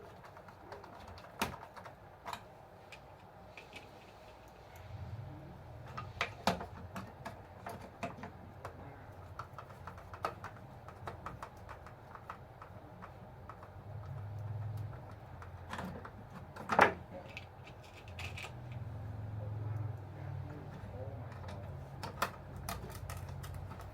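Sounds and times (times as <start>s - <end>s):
faint low hum: 0.0s - 23.9s
plastic and metal parts clicking: 5.8s - 18.8s, 20.7s - 23.9s.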